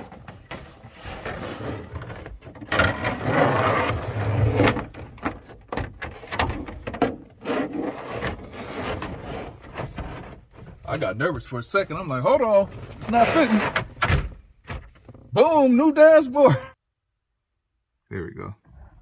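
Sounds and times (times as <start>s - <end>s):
plastic scraping on plastic: 0.0s - 11.0s.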